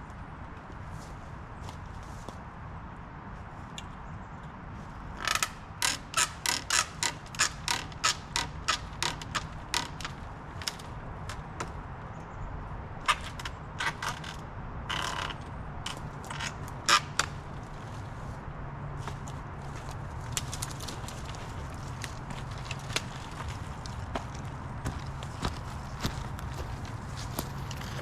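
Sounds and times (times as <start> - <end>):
loppers snapping branches: 19.0 - 26.6.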